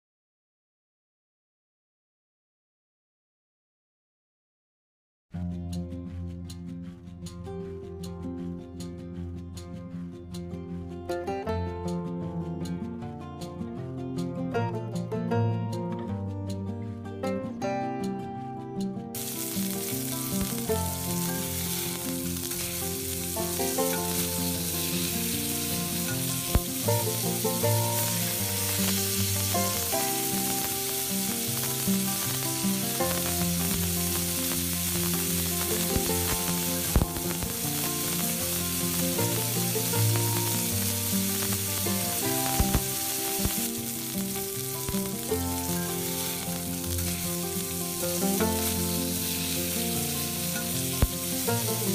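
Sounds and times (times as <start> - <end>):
food sizzling in hot oil: 19.2 - 51.9.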